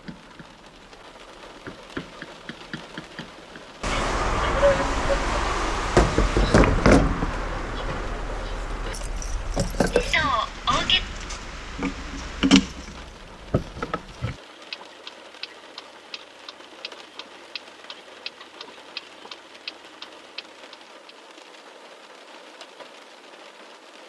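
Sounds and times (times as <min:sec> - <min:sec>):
steady rain: 0:00.0 - 0:24.0
knocks: 0:05.8 - 0:08.1, 0:09.0 - 0:14.4.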